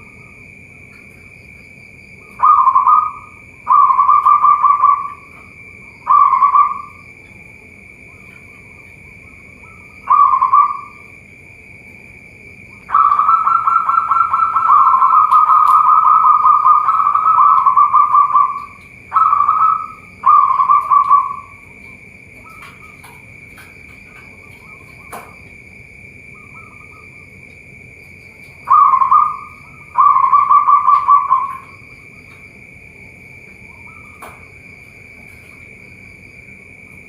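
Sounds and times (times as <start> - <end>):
steady high-pitched tone: 2.0 - 11.3, 12.5 - 22.8, 28.4 - 37.0
doves cooing: 2.1 - 37.0.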